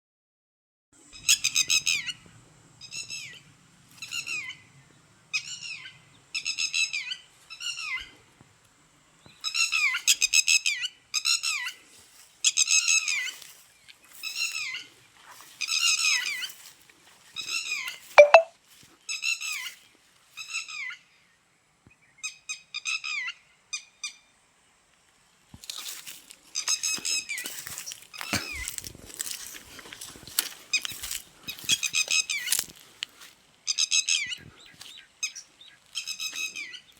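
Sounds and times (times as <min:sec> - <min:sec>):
birds calling harshly: 0:33.7 - 0:36.9.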